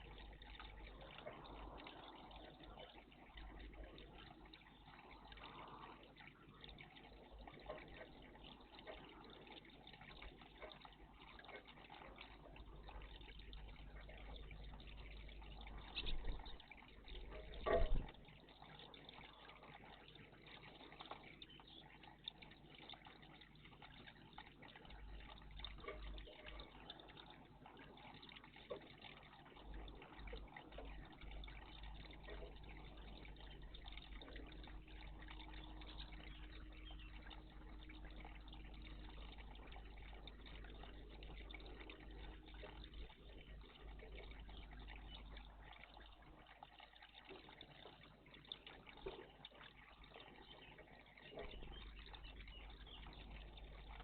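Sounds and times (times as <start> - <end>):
water trickling and splashing: 0.0 - 54.0.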